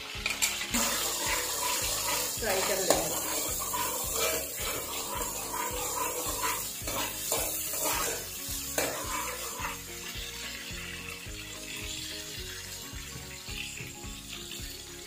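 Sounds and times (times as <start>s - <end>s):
garlic sizzling in hot oil: 0.0s - 15.0s
metal spoon scraping and stirring: 0.1s - 10.7s
background music with beat: 6.1s - 15.0s.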